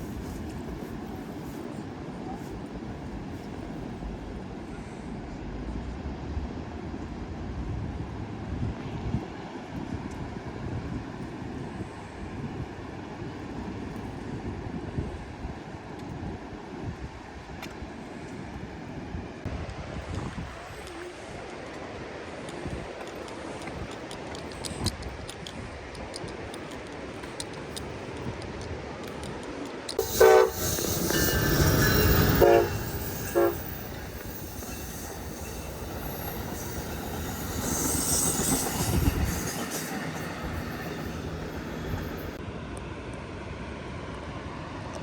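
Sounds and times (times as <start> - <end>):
train rumbling past: 0.0 - 16.0, 28.9 - 42.6
train horn blasts: 30.0 - 39.6.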